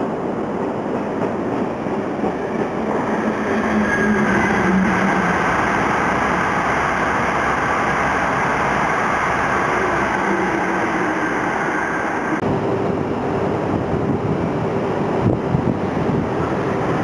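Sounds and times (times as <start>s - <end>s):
train rushing past: 0.0s - 17.0s
wind on microphone: 12.3s - 17.0s.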